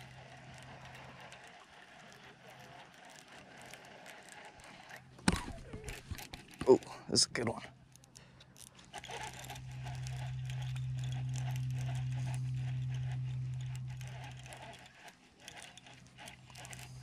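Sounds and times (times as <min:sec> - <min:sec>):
fishing reel clicking: 0:00.0 - 0:17.0
low hum: 0:07.8 - 0:17.0.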